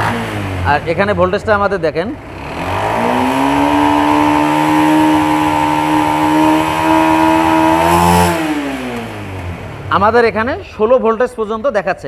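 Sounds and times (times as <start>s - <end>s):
motorcycle engine revving: 0.0s - 11.3s.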